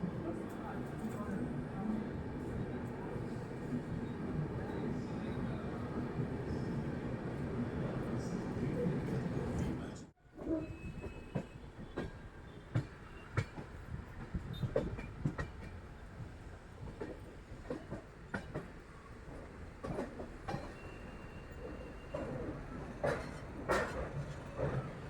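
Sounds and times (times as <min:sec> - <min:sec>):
train rumbling on rails: 0:00.0 - 0:25.0
train wheels knocking and clacking: 0:11.0 - 0:25.0.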